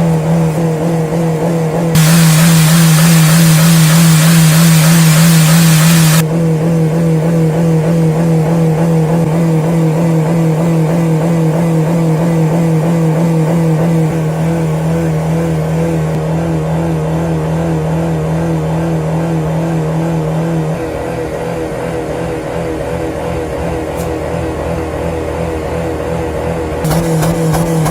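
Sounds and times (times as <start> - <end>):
engine at high revs: 0.0 - 27.9
loud hiss: 2.0 - 6.2.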